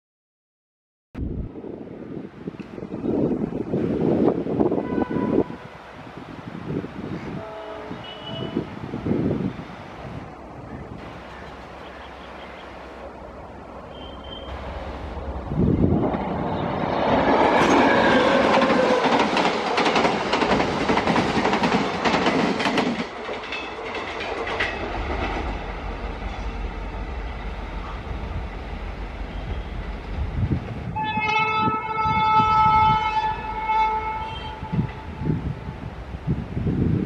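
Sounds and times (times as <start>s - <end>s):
train horn blast: 4.7s - 5.8s, 7.2s - 8.7s, 13.9s - 14.7s, 17.5s - 19.2s, 29.2s - 29.9s, 30.9s - 35.4s
train wheels clattering over rails: 14.6s - 28.7s.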